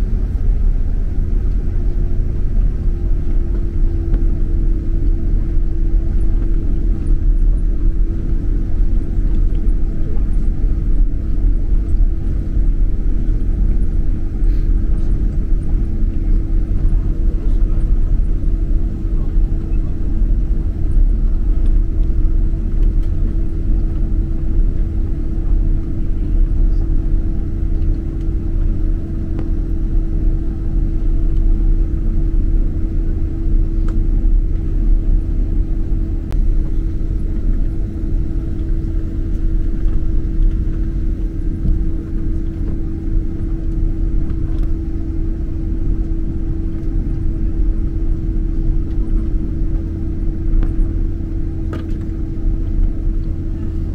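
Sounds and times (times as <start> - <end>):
airplane cabin engine rumble: 0.0 - 53.9
constant hum: 0.0 - 53.9.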